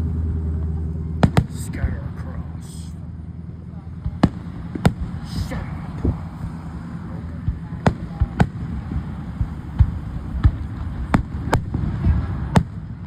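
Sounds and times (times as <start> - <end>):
fireworks shells bursting: 4.0 - 11.7.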